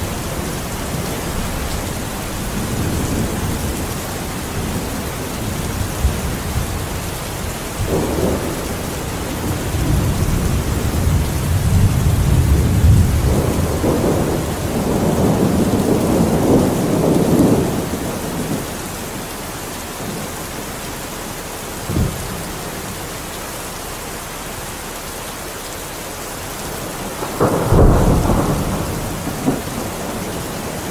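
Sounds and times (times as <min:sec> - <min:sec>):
thunderclap: 0:00.0 - 0:18.7, 0:26.7 - 0:30.9
thunder rumbling: 0:00.0 - 0:23.4, 0:26.2 - 0:30.9
heavy rain: 0:00.0 - 0:30.9.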